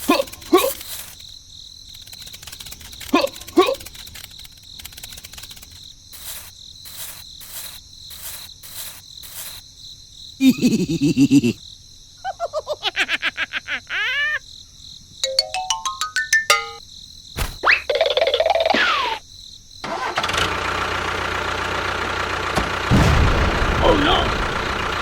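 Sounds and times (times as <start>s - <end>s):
cricket chirps: 0.0s - 15.2s, 16.8s - 19.8s
pitched plinks: 15.2s - 16.8s
rising run of notes: 15.2s - 16.8s
steady high tone: 15.2s - 16.8s.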